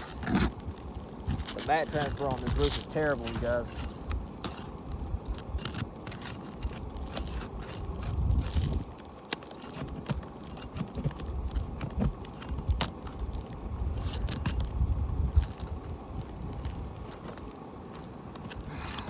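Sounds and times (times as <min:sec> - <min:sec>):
shingles clicking and scraping: 0:00.0 - 0:19.0.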